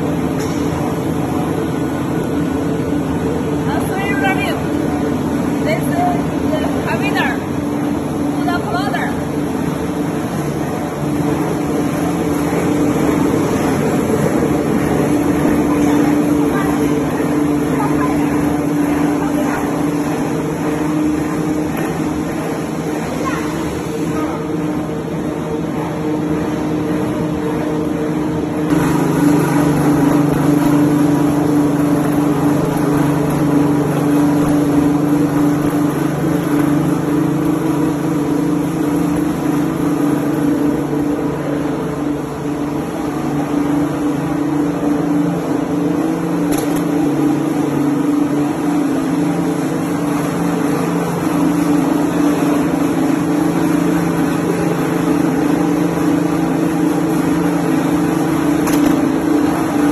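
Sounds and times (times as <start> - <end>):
machinery motor hum: 0.0 - 59.9.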